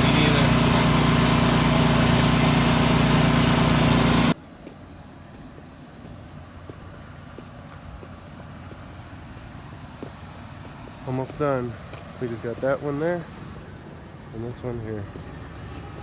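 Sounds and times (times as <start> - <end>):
gas engine running: 0.0 - 4.4.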